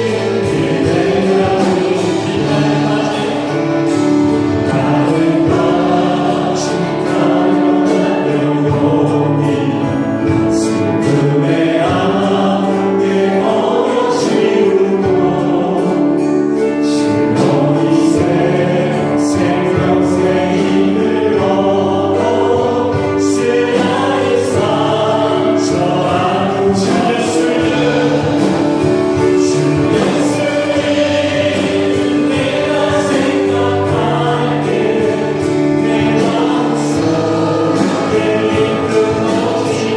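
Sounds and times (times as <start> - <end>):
group singing worship song: 0.0 - 39.9
instrumental backing with percussion: 0.0 - 39.9.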